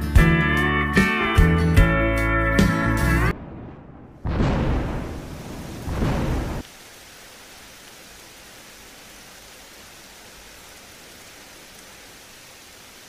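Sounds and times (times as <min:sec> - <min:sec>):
loud thunder burst: 0:03.3 - 0:06.6
steady rain hiss: 0:04.3 - 0:13.0.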